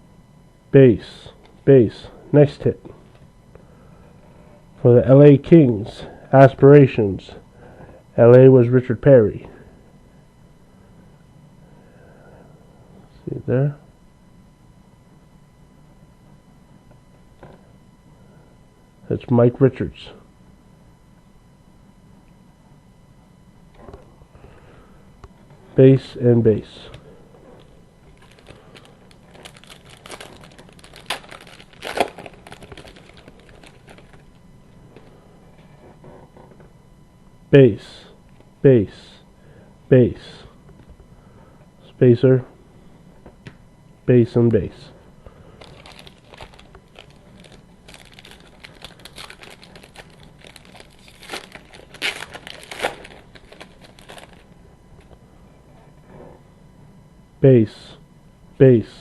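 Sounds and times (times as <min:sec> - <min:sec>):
cards being handled: 0:27.6 - 0:34.3, 0:45.6 - 0:54.5
foil wrapper crinkling and tearing: 0:28.2 - 0:34.4, 0:45.6 - 0:54.5.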